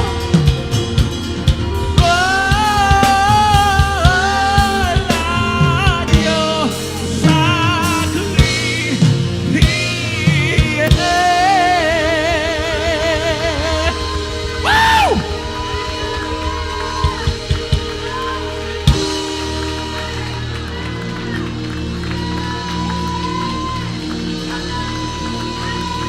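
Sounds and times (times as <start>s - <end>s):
person singing with vibrato: 0.0s - 19.2s
bass: 0.0s - 26.0s
drum kit: 0.0s - 26.0s.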